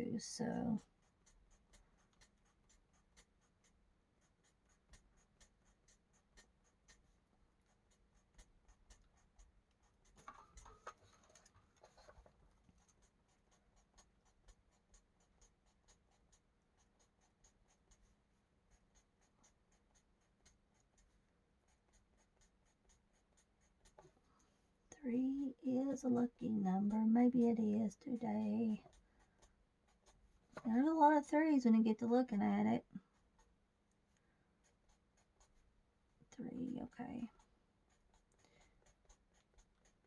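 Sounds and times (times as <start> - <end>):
marker scratching on paper: 1.0 - 24.2, 25.7 - 31.5.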